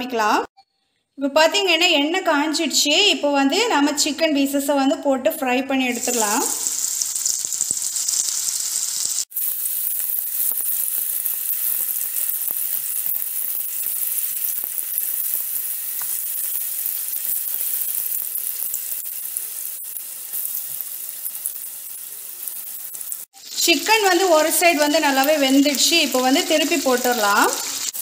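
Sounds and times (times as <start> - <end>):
chicken sizzling in hot oil: 5.9 - 28.0.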